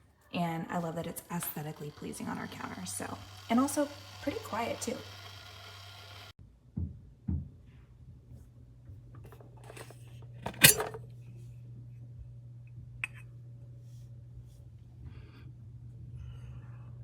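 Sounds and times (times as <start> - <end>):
low steady hum: 7.8 - 17.0.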